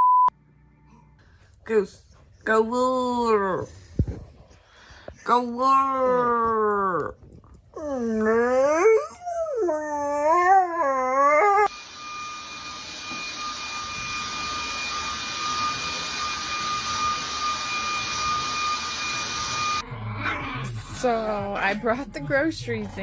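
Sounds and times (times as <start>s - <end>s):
dog howling: 7.8s - 11.7s
constant high-pitched tone: 11.7s - 19.8s.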